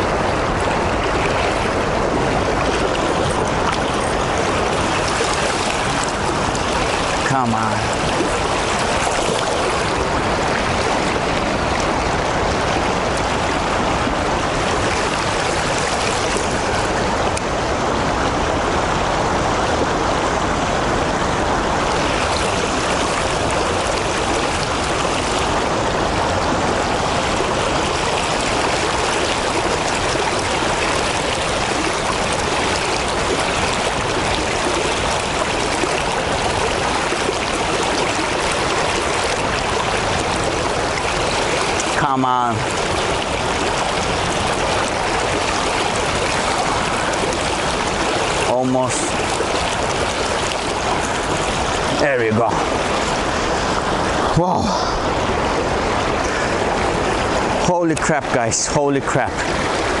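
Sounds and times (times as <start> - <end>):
river water rushing: 0.0 - 60.0.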